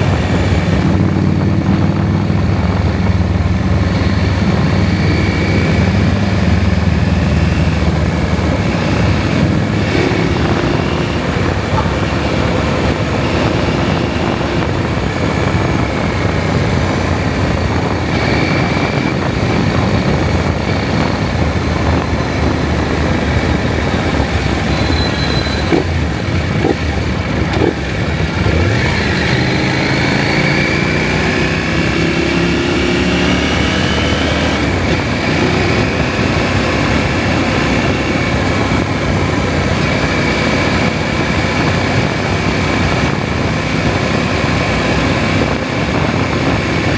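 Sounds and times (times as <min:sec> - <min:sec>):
motorcycle engine running: 0:00.0 - 0:46.9
wind rush on microphone: 0:00.0 - 0:46.9.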